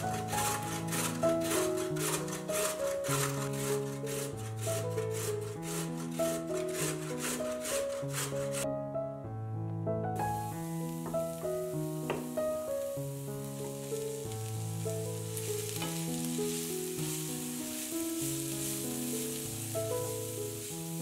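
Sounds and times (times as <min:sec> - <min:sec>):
wooden spatula stirring: 0:00.0 - 0:08.6, 0:10.4 - 0:21.0
vegetables sizzling in a frying pan: 0:10.2 - 0:21.0.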